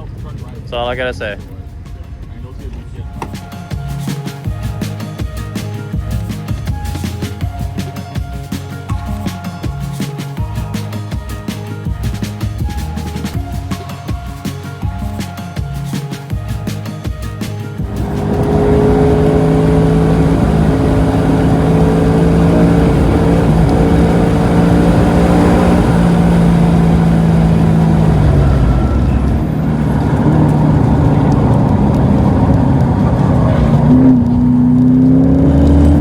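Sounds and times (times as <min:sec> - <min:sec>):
car engine running under load: 0:16.4 - 0:36.0.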